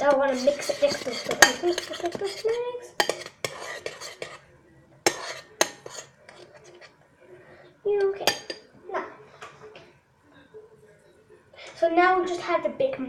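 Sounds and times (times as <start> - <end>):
metal spoon clinking against bowl: 0.0 - 4.4, 5.0 - 6.9, 8.0 - 8.7.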